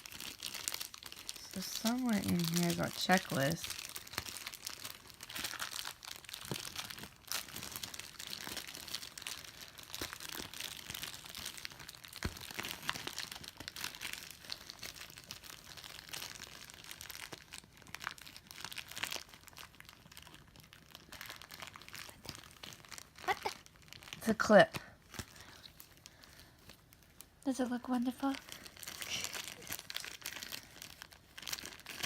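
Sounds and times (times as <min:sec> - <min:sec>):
plastic packaging crinkling: 0:00.0 - 0:32.0.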